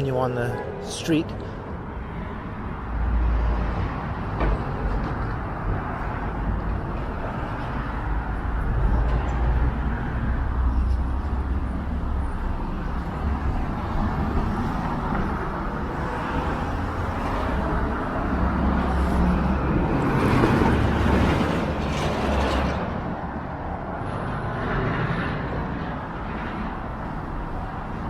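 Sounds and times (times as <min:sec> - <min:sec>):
cars driving past: 0:00.4 - 0:28.0
loud vehicle passing: 0:13.1 - 0:28.0.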